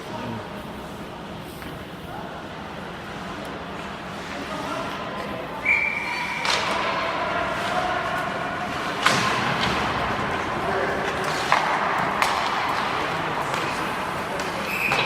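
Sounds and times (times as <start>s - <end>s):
puck cracking against boards: 6.4s - 15.0s.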